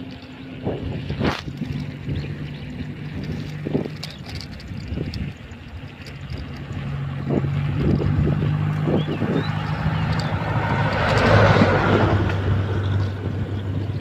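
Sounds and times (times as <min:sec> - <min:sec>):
vehicle passing by: 0:06.1 - 0:14.0.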